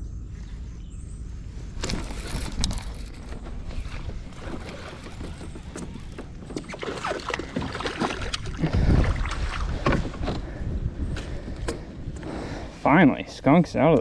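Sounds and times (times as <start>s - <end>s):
knocks and rattles on kayak: 1.8s - 12.3s
water splashing: 1.9s - 9.9s.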